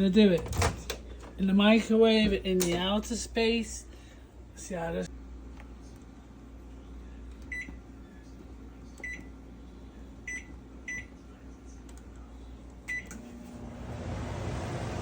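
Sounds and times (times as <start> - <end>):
microwave keypad beeping: 7.5 - 7.8, 9.0 - 9.3, 10.3 - 11.1.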